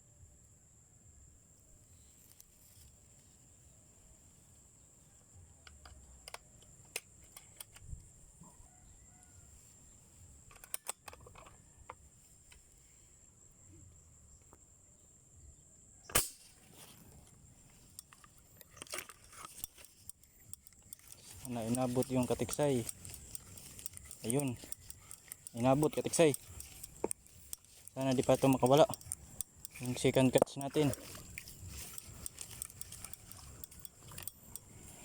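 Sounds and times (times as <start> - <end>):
air rifle shot: 16.1 - 16.6
faint clicks and ticks: 16.9 - 35.0.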